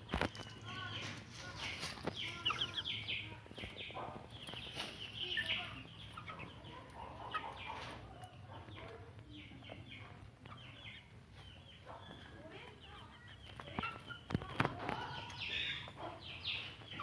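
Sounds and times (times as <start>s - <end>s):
chicks peeping: 0.0s - 17.0s
hens clucking: 0.0s - 17.0s.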